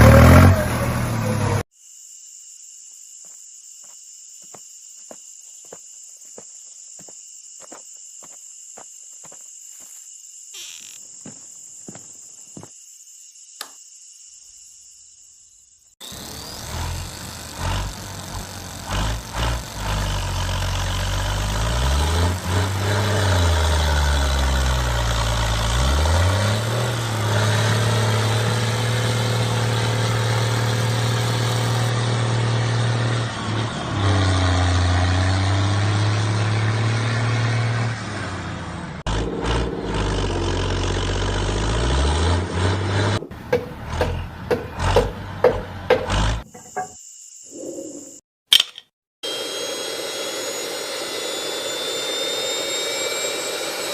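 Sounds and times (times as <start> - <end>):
toy tractor motor running: 16.0 - 31.9.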